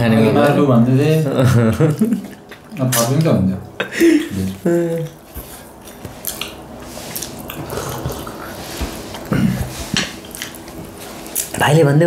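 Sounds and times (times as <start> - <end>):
wet chewing and lip smacking: 1.8 - 3.3, 4.5 - 9.3, 9.9 - 11.6.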